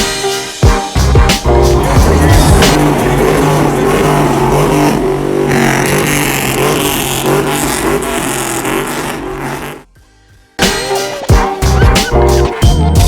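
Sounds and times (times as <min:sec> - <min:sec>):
vehicle engine running: 0:01.5 - 0:09.9.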